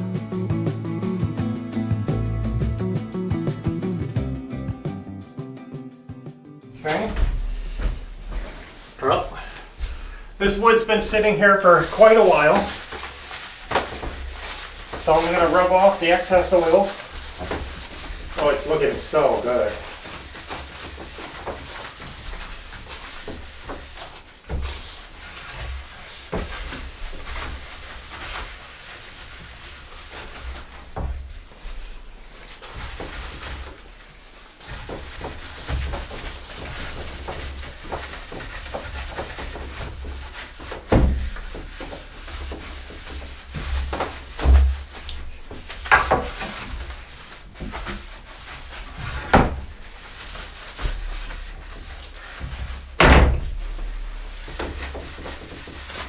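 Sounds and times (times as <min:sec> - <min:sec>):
wood knocking: 0:06.8 - 0:10.7, 0:34.7 - 0:48.2, 0:48.9 - 0:49.8, 0:52.0 - 0:55.8
rag rubbing on oiled wood: 0:06.8 - 0:56.0.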